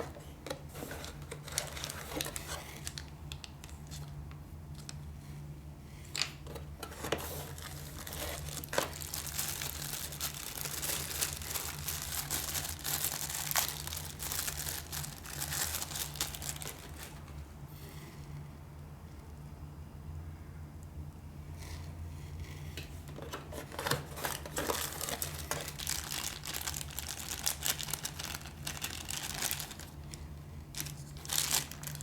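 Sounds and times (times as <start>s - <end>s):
plastic packaging crinkling and tearing: 0.0s - 5.0s, 6.2s - 17.5s, 23.2s - 32.0s
steady low hum: 0.0s - 32.0s.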